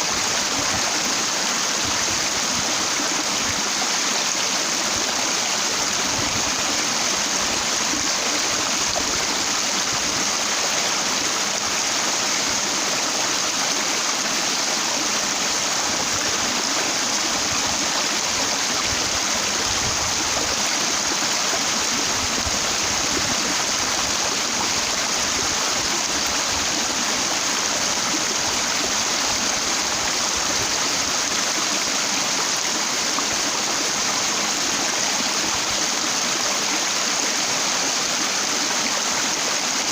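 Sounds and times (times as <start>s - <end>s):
stream water rushing over rock: 0.0s - 39.9s.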